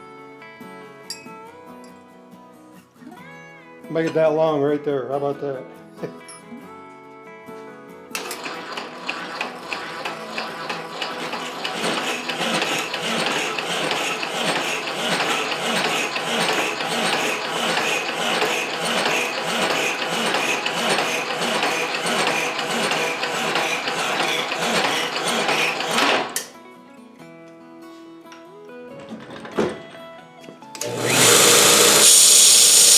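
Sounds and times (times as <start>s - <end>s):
hacksaw cutting metal rod: 8.2s - 26.5s, 30.8s - 32.9s.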